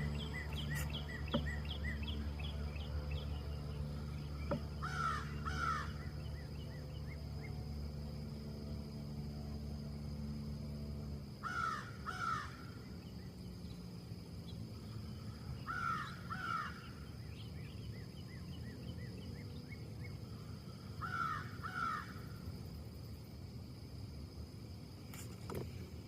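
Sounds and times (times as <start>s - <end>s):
bird harsh downward calls: 0.0s - 7.6s, 11.4s - 13.0s, 15.3s - 17.8s, 21.0s - 22.3s
steady low rumble: 0.0s - 11.4s.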